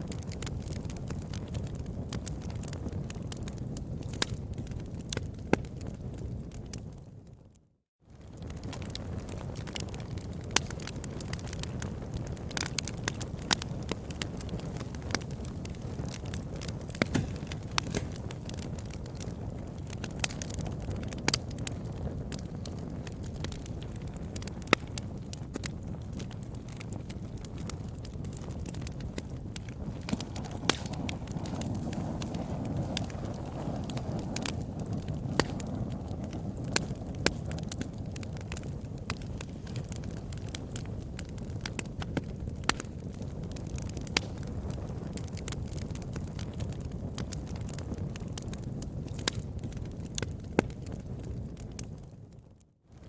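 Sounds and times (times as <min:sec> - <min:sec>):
fire crackling: 0:00.0 - 0:53.0
sharp pops: 0:16.9 - 0:18.4, 0:30.0 - 0:31.7.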